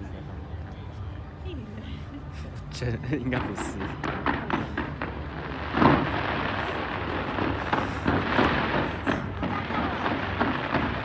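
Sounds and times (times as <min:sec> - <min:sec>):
fireworks bangs and crackles: 0:03.3 - 0:11.0.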